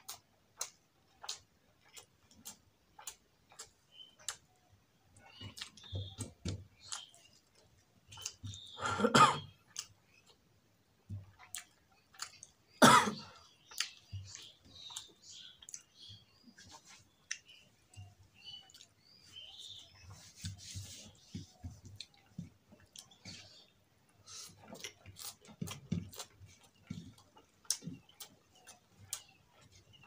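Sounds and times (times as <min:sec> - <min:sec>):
man chewing with lip smacks: 0:00.0 - 0:04.7, 0:05.3 - 0:08.8, 0:09.7 - 0:10.4, 0:11.2 - 0:12.7, 0:13.6 - 0:30.0.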